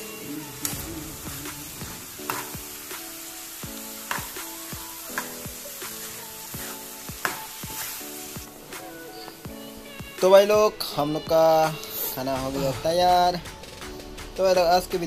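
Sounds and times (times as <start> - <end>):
vegetables sizzling in pan: 0.0 - 10.0
background music: 0.0 - 15.0.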